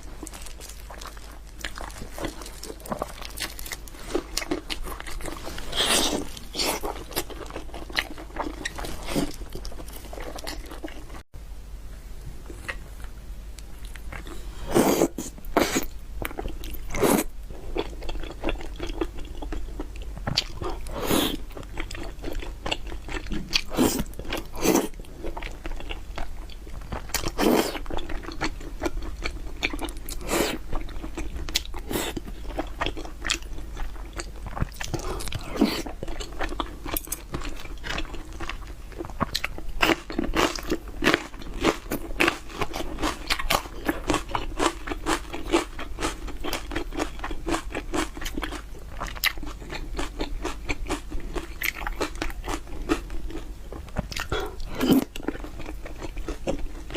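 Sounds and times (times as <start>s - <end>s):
crisp food crunches: 0.0s - 11.0s
person chewing food: 0.0s - 11.2s, 12.5s - 56.9s.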